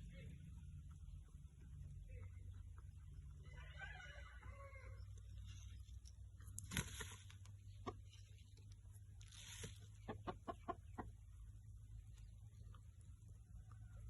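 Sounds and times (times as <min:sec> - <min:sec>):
rooster clucking: 0:10.0 - 0:11.2.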